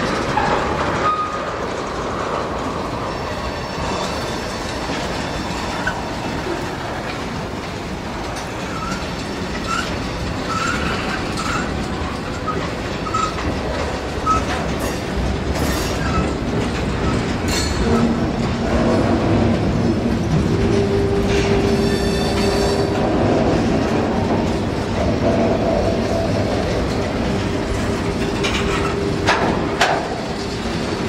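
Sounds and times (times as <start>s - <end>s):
freight train wheels rumbling: 0.0s - 31.0s
high wheel squeaks: 3.1s - 6.8s, 8.3s - 18.3s, 20.7s - 23.0s
wheel clicks over rail joints: 3.8s - 25.6s, 26.2s - 31.0s.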